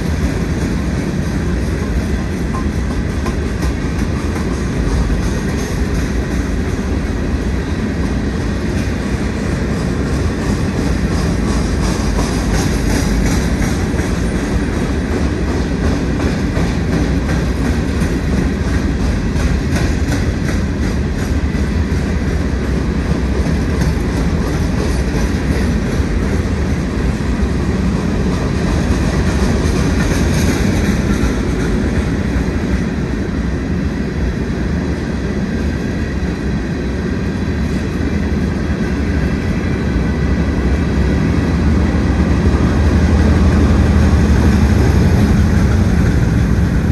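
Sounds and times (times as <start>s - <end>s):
diesel locomotives: 0.0s - 46.9s
freight train rumbling past: 0.0s - 46.9s
wheels clicking over rail joints: 8.7s - 27.0s, 28.0s - 32.8s.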